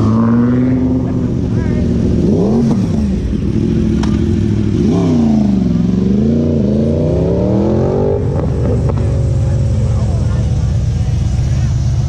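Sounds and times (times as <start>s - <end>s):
car engine revving: 0.0s - 12.0s
engines idling: 0.0s - 12.0s.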